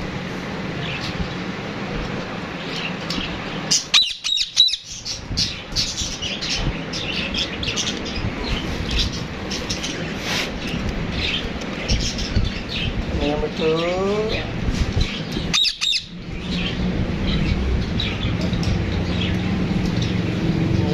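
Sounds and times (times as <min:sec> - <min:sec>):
parrot chirps: 0:03.7 - 0:05.2, 0:15.4 - 0:16.2
parrot squawking: 0:03.7 - 0:06.2, 0:15.5 - 0:16.2.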